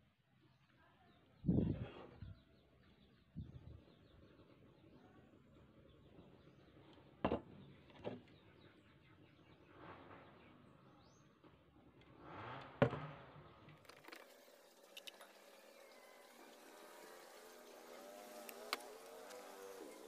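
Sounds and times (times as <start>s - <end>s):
faint outdoor background: 0.0s - 20.0s.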